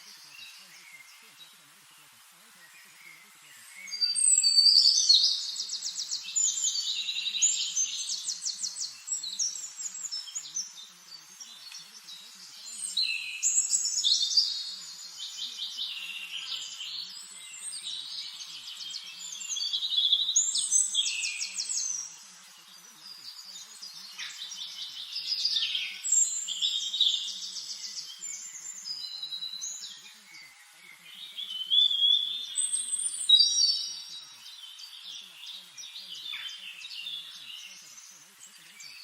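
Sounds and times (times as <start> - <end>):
songbird whistling and trilling: 3.6 - 10.5.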